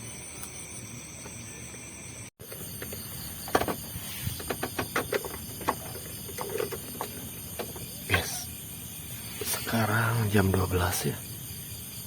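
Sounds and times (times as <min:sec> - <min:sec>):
insect chorus hiss: 0:00.0 - 0:12.0
sharp clicks and knocks: 0:02.4 - 0:07.9.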